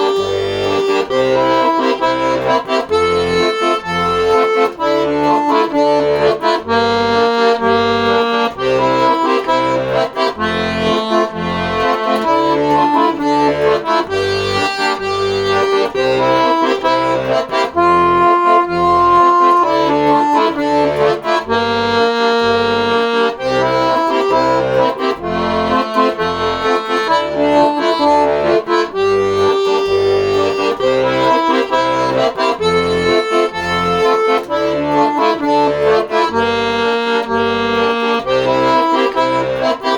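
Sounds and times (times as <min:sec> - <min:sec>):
accordion playing: 0:00.0 - 0:39.9.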